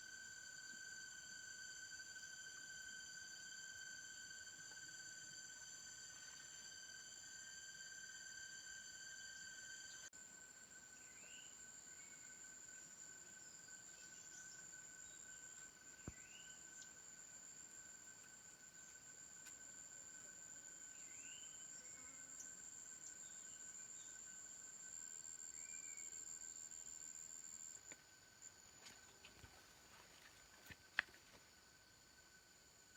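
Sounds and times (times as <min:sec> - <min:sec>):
steady high-pitched tones: 0:00.0 - 0:30.8.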